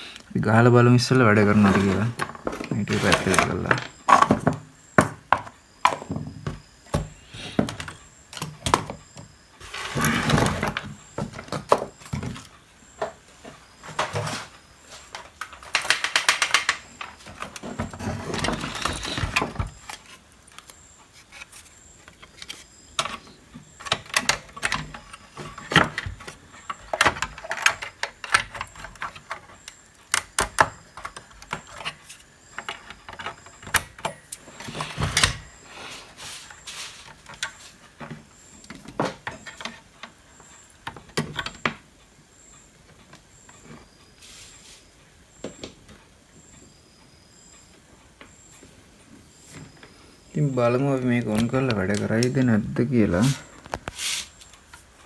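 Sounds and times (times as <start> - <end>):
parts and tools clicking and knocking: 0.2 - 35.6, 36.4 - 42.0, 49.5 - 54.9
short scraping: 53.2 - 54.4.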